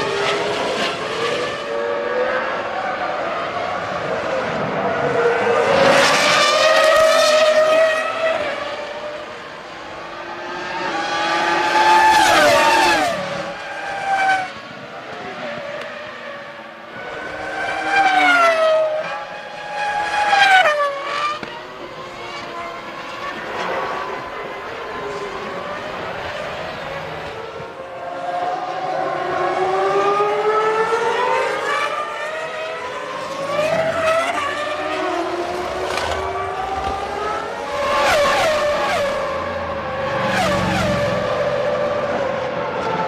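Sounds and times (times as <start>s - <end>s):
racing cars screaming past: 33.3s - 43.0s.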